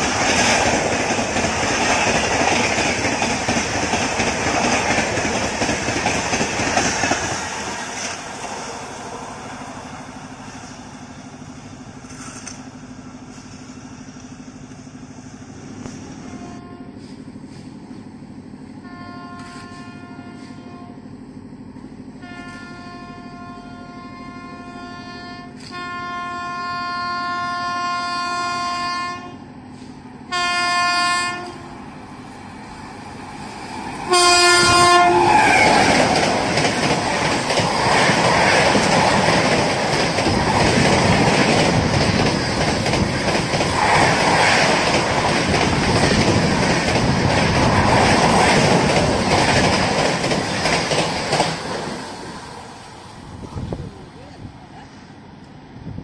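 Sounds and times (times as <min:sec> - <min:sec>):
express train rushing past: 0:00.0 - 0:56.0
electric locomotive horn: 0:16.2 - 0:17.2, 0:18.8 - 0:21.1, 0:22.2 - 0:29.5, 0:30.3 - 0:31.8, 0:34.0 - 0:35.9.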